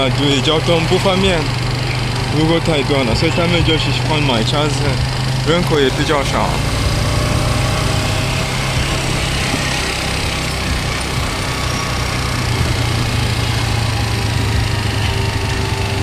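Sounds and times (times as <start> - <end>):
motorcycle engine running: 0.0 - 16.0
road and wind noise: 0.0 - 16.0.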